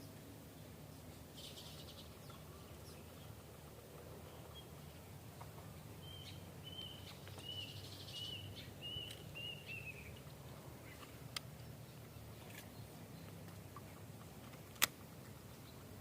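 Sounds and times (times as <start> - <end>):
low outdoor background: 0.0 - 16.0
sharp click: 14.7 - 15.0.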